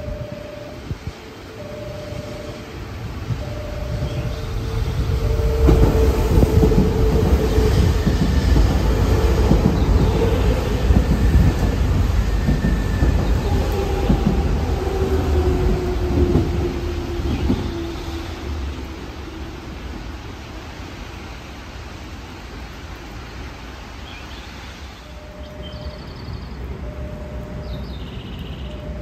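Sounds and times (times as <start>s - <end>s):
intermittent beeping tone: 0.0s - 4.6s, 25.0s - 29.0s
train rumble and wheel clatter: 0.0s - 29.0s.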